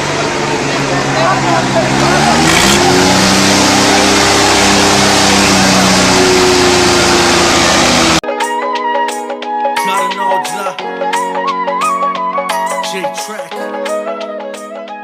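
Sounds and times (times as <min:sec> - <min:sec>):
loud engine revving: 0:00.0 - 0:08.2.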